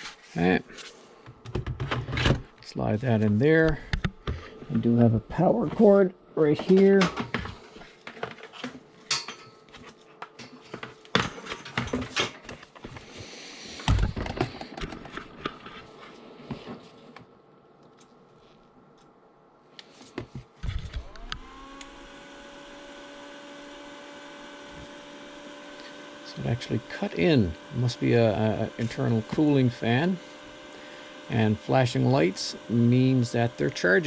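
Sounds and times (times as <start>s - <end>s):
cooling fan humming: 0.2s - 34.0s
plastic parts clicking and knocking: 13.9s - 15.8s.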